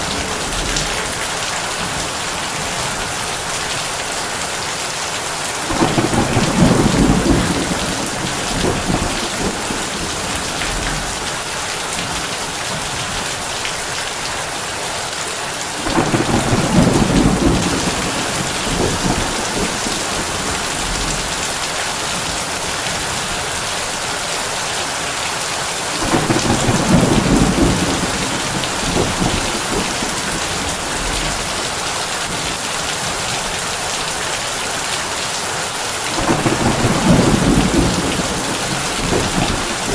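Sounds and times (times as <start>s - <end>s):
heavy rain on a tin roof: 0.0s - 39.9s
low rolls of thunder: 5.7s - 11.3s, 15.8s - 21.6s, 25.9s - 31.8s, 36.1s - 39.9s.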